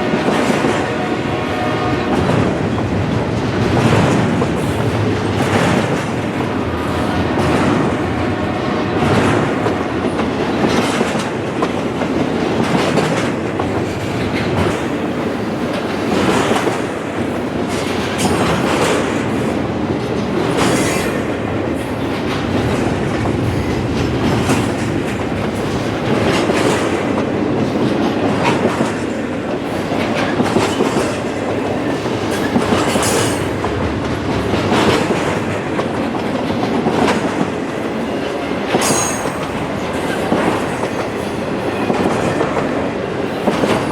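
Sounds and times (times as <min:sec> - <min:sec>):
freight train cars rolling past: 0:00.0 - 0:43.9
wheels clacking over rail joints: 0:08.9 - 0:43.9.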